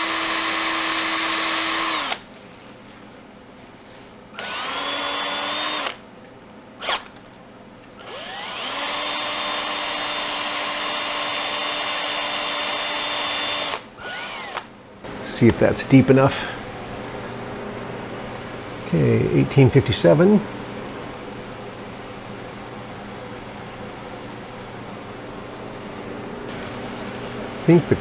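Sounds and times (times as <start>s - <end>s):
cordless drill motor whining: 0.0s - 2.3s, 4.4s - 6.0s, 6.8s - 7.1s, 8.0s - 14.7s.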